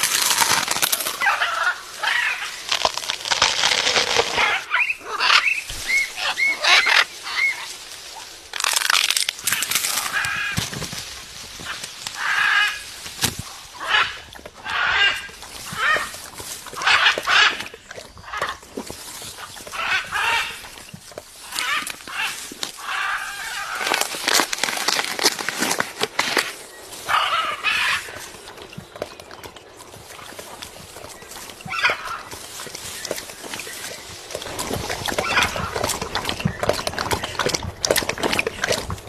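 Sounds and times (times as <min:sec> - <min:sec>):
birds squawking: 0:04.4 - 0:07.7, 0:31.6 - 0:37.4.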